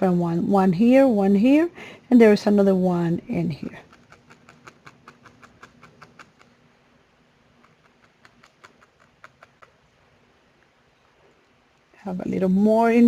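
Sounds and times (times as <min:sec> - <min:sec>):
felting needle clicking into wool: 0:03.8 - 0:06.6, 0:07.6 - 0:09.8.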